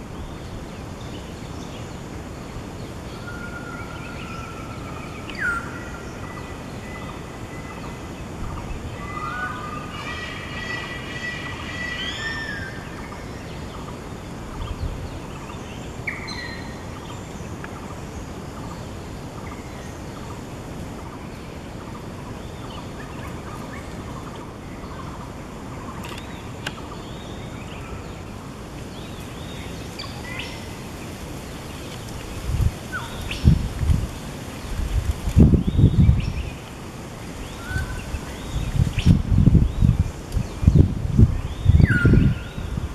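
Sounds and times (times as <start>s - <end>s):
birds calling: 0.0s - 42.8s
outdoor background hiss: 0.0s - 42.9s
wind bumps on microphone: 31.0s - 42.9s.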